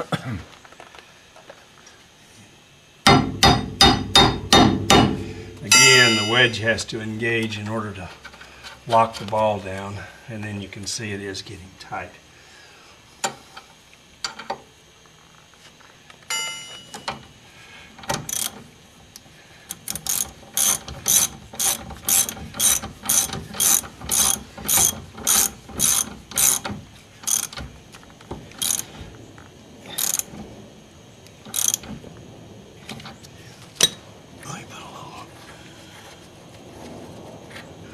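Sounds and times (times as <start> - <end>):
ringing metal clink: 4.9 - 6.6, 16.3 - 17.2
socket ratchet clicking: 19.7 - 27.6, 28.6 - 28.8, 31.5 - 31.8.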